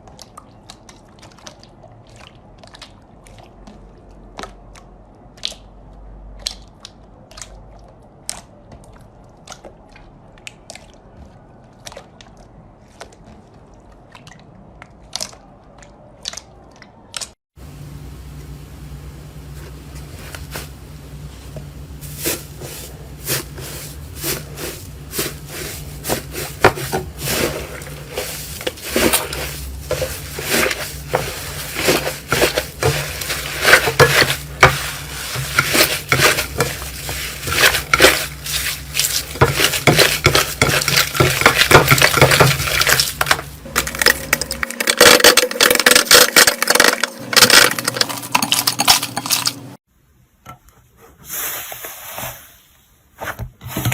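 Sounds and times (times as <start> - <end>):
crunchy slime clicking and popping: 4.4 - 8.6.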